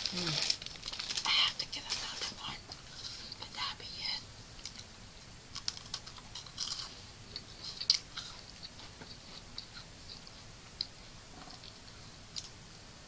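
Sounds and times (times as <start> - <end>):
chewing crunchy snack: 5.5 - 12.5.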